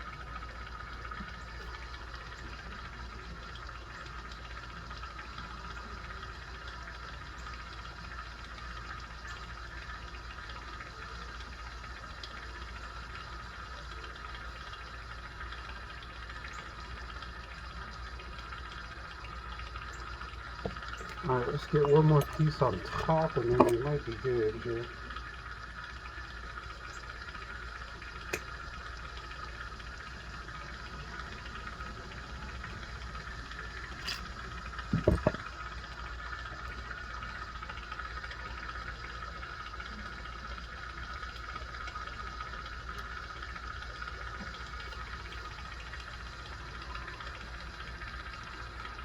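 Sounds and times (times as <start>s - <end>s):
equipment hiss over low hum: 19.9s - 25.6s
short knock: 35.0s - 35.4s.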